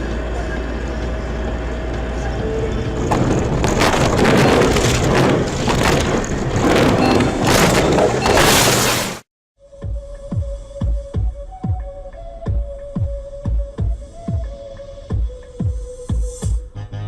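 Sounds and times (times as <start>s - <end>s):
vehicle low rumble: 0.0s - 8.3s.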